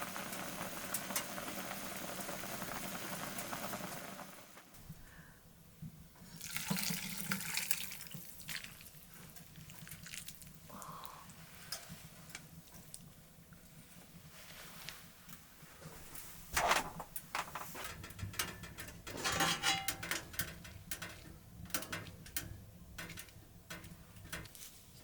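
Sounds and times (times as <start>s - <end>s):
tap water running: 0.0s - 4.6s, 6.3s - 10.6s
small clicks and knocks: 16.6s - 24.7s.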